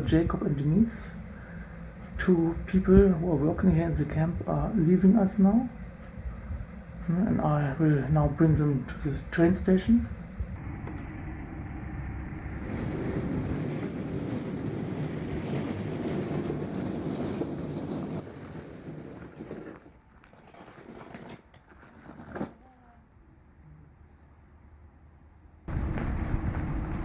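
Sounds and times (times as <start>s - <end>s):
car road and engine noise: 10.2s - 15.1s, 25.7s - 27.0s.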